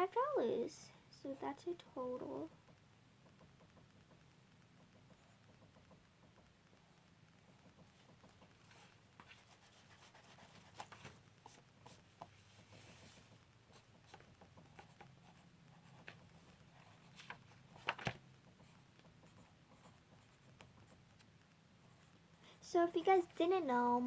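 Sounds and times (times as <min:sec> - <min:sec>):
pen scratching on paper: 0:07.5 - 0:17.2, 0:18.5 - 0:21.1.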